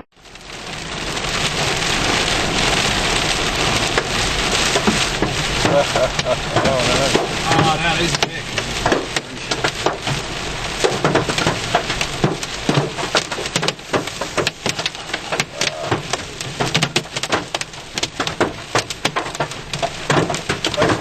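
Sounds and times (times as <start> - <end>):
heavy rain pelting a vehicle: 0.1 - 21.0.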